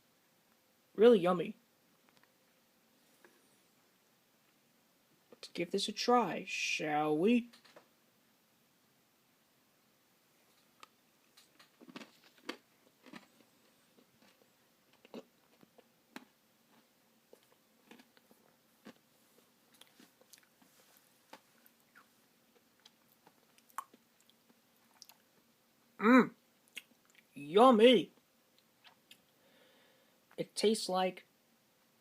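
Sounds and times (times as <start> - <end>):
person chewing ice cream: 11.4 - 25.3.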